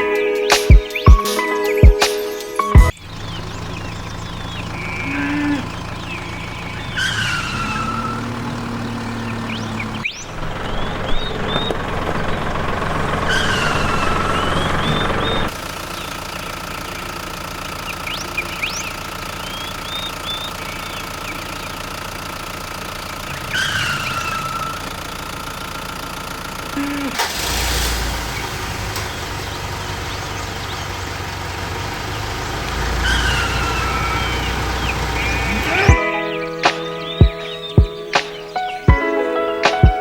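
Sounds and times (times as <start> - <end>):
small motor running: 3.1 - 28.0.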